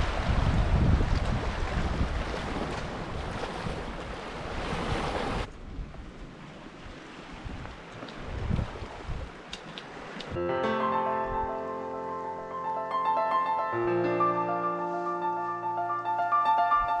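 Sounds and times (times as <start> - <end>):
waves washing on rocks: 0.0 - 5.5
wind rumbling on microphone: 0.0 - 10.4.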